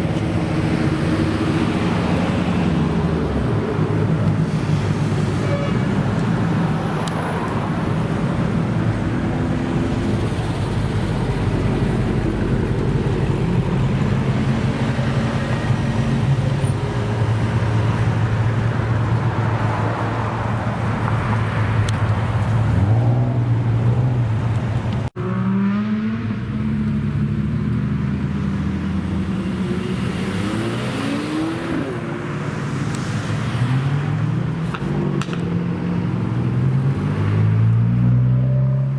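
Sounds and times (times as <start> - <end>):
car engines revving: 0.0 - 38.9.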